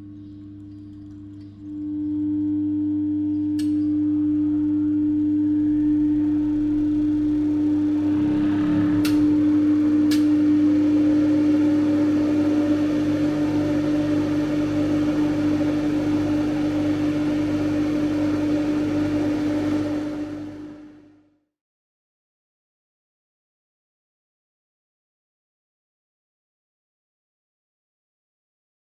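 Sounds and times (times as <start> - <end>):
electric motor humming: 4.8 - 21.1
rising tone: 6.2 - 16.6.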